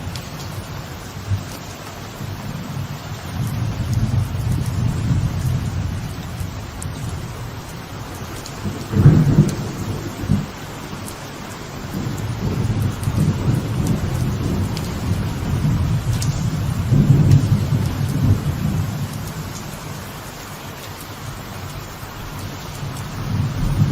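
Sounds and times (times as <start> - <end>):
thunder rumbling: 0.0 - 20.2, 21.3 - 23.9
rain falling on a veranda: 0.0 - 23.9
loud thunderclap: 3.3 - 7.6, 8.3 - 10.6, 11.8 - 19.6, 23.2 - 23.9.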